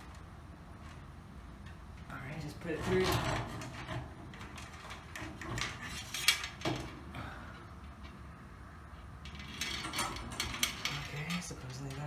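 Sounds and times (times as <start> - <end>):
metal cable rattling: 2.8 - 7.0, 9.2 - 12.0.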